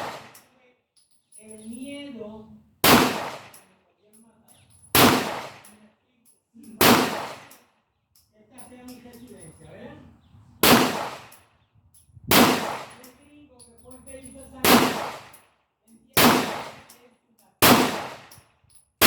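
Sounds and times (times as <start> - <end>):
pistol shots echoing: 0.0 - 0.4, 2.8 - 3.6, 4.9 - 5.7, 6.8 - 7.6, 10.6 - 11.4, 12.3 - 13.2, 14.6 - 15.4, 16.2 - 17.0, 17.6 - 18.4.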